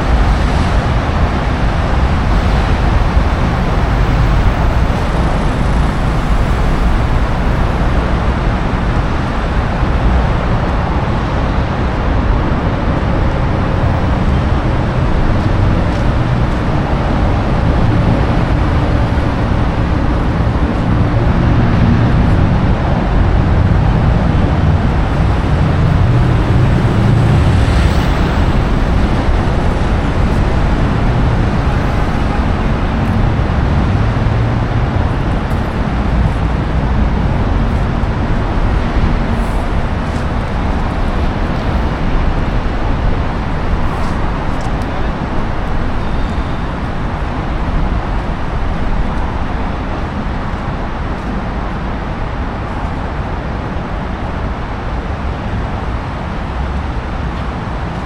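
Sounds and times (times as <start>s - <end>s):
vehicle passing loudly: 0.0s - 44.4s
road traffic noise: 0.0s - 58.0s.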